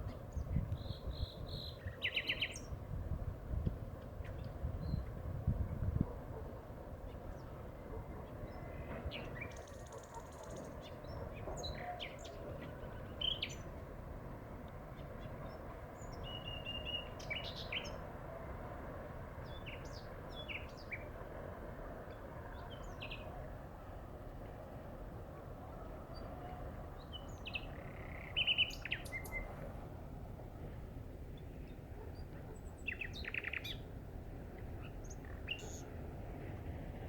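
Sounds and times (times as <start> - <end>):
outdoor background noise: 0.0 - 37.0
nightingale singing: 27.0 - 29.5, 32.8 - 33.8.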